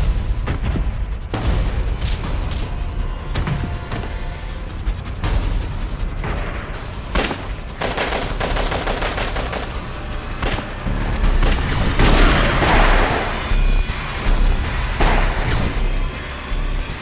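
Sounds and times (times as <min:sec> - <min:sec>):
gunfire bursts and shots: 0:06.2 - 0:16.0.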